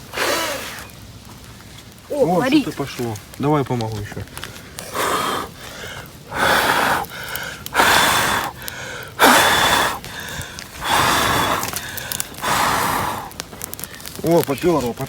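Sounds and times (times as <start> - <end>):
person blowing on a fire: 0.0 - 1.0, 4.7 - 13.9.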